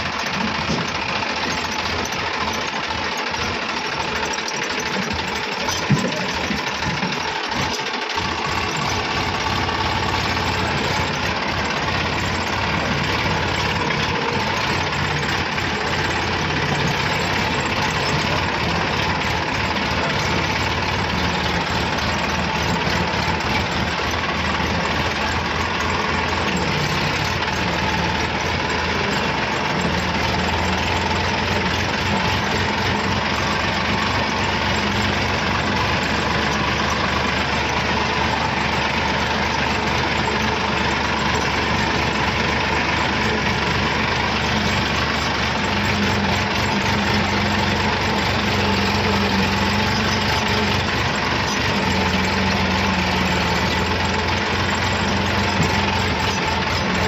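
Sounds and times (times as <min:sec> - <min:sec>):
heavy vehicle engine idling: 0:00.0 - 0:57.0.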